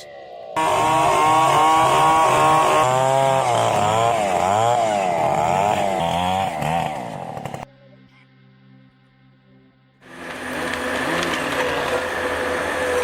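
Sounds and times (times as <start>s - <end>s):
chainsaw cutting timber: 0.6s - 7.7s, 10.0s - 13.0s.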